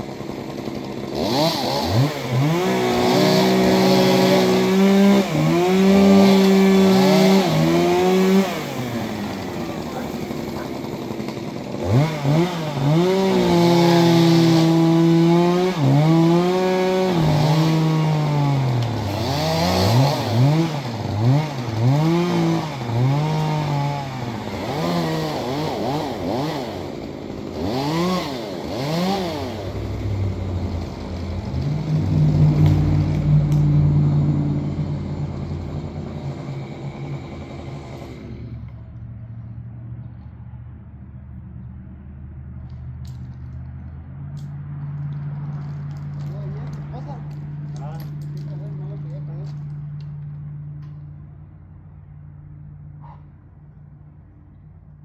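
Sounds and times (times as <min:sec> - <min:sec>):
chainsaw engine revving: 0:00.0 - 0:39.1.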